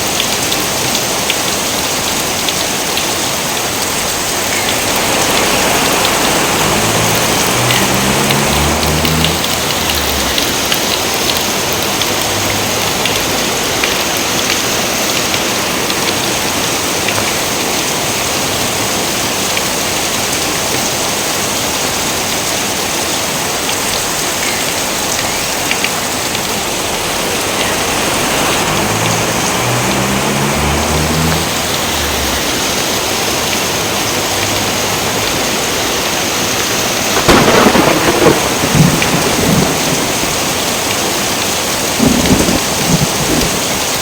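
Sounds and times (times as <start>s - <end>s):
heavy rain hiss: 0.0s - 44.0s
raindrops ticking: 0.0s - 44.0s.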